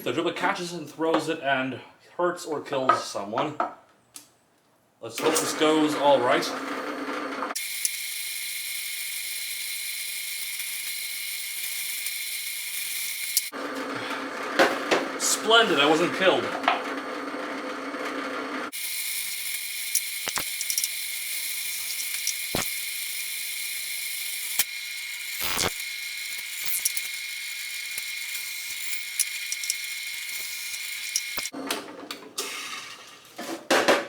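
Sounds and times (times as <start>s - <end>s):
electric drill whining: 18.7s - 31.5s.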